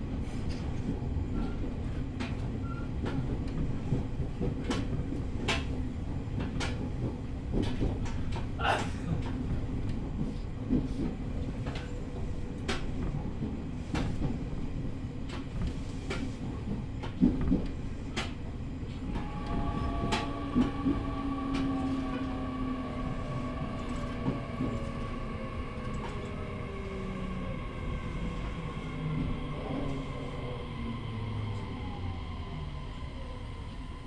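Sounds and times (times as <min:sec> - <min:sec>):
train rumbling: 0:00.0 - 0:34.0
train motor whine: 0:18.7 - 0:34.0.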